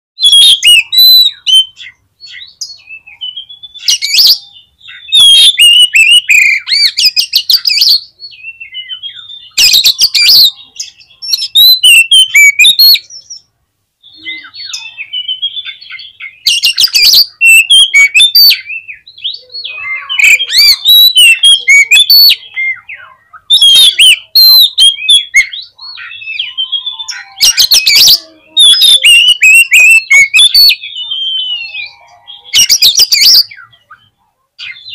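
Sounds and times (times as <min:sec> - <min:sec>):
bird whistled song: 0:00.2 - 0:34.9
bird harsh clicking chatter: 0:27.4 - 0:30.8.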